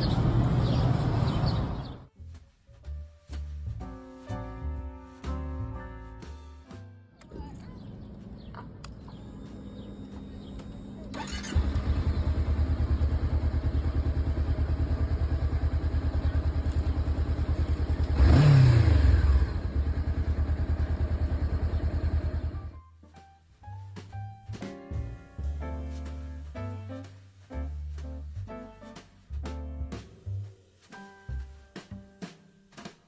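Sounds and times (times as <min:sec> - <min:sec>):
motorcycle engine starting and idling: 0:08.8 - 0:22.8
motorcycle engine revving: 0:09.1 - 0:22.8.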